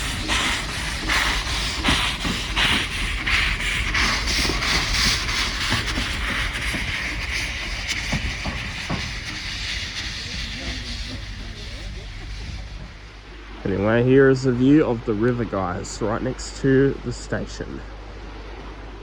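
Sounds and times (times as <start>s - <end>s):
steam hiss: 0.0s - 16.6s
steam locomotive exhaust chuffs: 0.0s - 17.8s.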